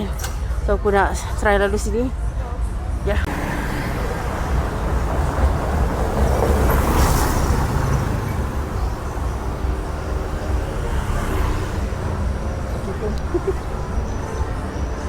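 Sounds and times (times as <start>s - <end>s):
street traffic rumble: 0.0s - 15.0s
vehicle passing close: 3.3s - 15.0s.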